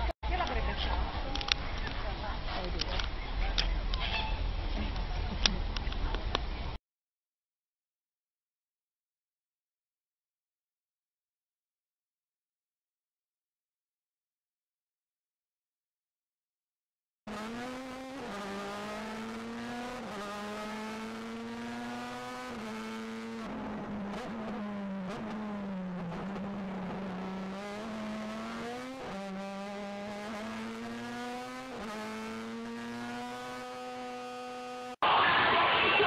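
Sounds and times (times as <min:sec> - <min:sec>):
race car engine revving: 0:17.3 - 0:36.0.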